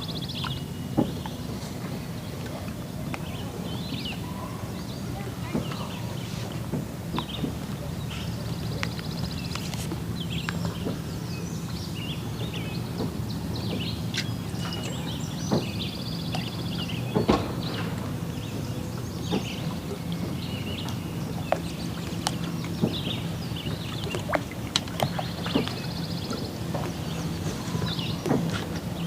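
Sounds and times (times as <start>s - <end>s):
songbirds chirping and trilling: 0.0s - 29.0s.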